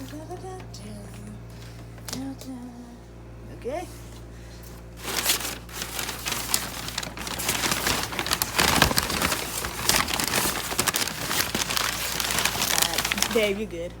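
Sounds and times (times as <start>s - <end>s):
packing material crinkling: 0.0s - 0.8s, 4.8s - 13.7s.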